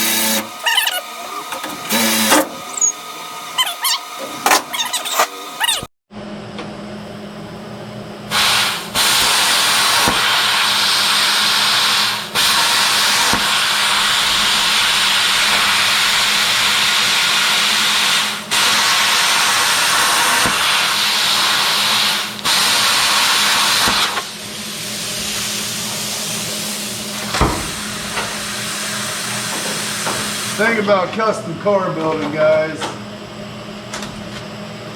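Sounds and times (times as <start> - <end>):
air tool running with hiss: 0.0 - 3.7, 8.3 - 31.0.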